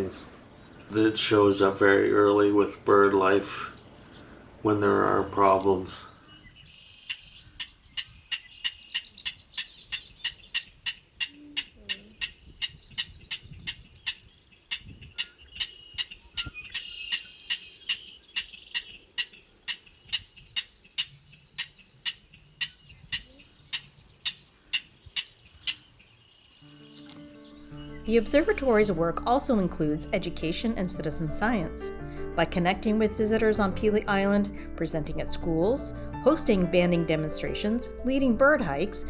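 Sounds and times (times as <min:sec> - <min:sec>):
faint high bird or insect calls: 0:03.3 - 0:28.6.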